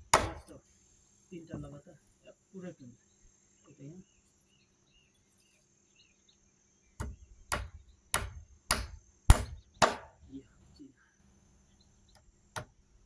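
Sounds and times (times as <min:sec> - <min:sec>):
hammer driving nails: 0:00.0 - 0:00.5, 0:07.0 - 0:10.2
faint insect chirping: 0:00.0 - 0:13.0.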